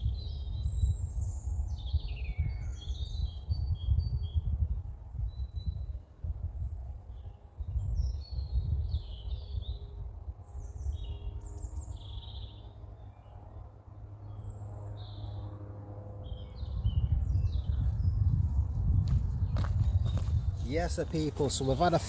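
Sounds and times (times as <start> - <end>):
small birds chirping: 0.0 - 4.5, 10.5 - 13.4
low microphone rumble: 16.2 - 22.0.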